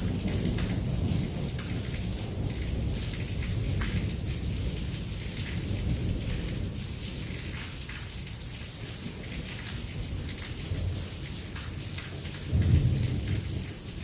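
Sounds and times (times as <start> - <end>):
heavy rain pouring: 0.0 - 14.0
rolling thunder rumble: 12.4 - 14.0.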